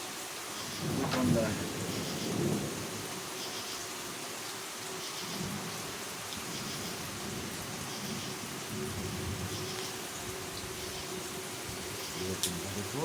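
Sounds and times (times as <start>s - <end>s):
steady rain falling: 0.0s - 13.0s
thunder rumbling: 0.7s - 3.2s.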